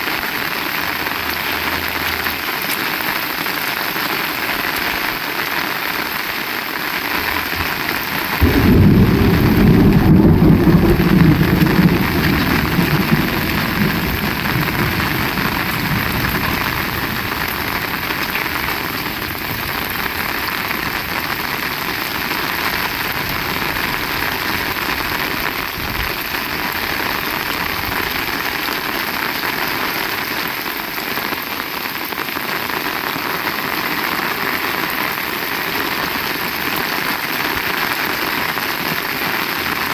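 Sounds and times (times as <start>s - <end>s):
heavy rain: 0.0s - 39.9s
thunder rumbling: 7.2s - 28.7s.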